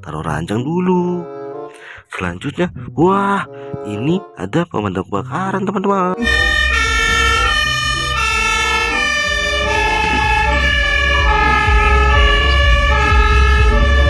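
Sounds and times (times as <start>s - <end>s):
fire engine siren: 6.2s - 14.0s
low engine rumble: 6.3s - 14.0s.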